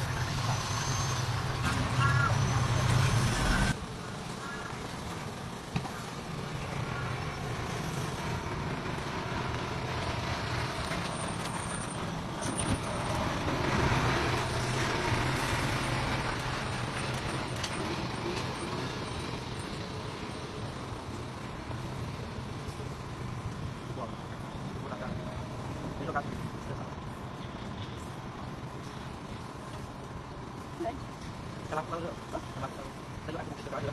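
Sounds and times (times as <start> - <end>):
dump truck diesel engine: 0.0 - 26.0.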